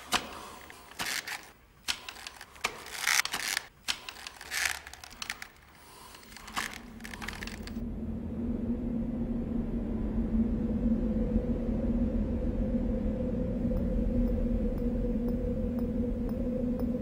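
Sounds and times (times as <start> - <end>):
rope ladder knocking and creaking: 0.0 - 7.8
low hum: 6.2 - 17.0.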